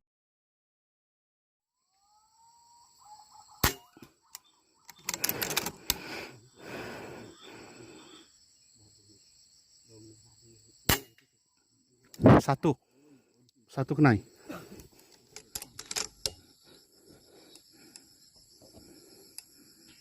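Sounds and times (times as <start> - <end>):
air rifle shot: 3.6 - 4.0, 10.9 - 11.1.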